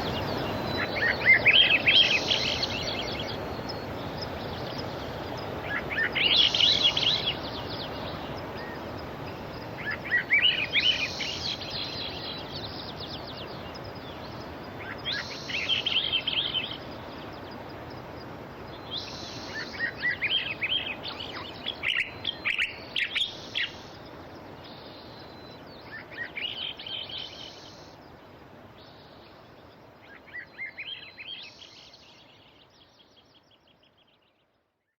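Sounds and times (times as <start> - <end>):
sea surf: 0.0 - 24.6
songbird chirping: 0.0 - 35.0.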